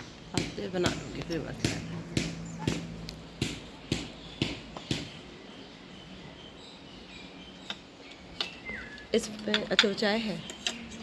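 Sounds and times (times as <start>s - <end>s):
sharp knocks: 0.3s - 5.2s.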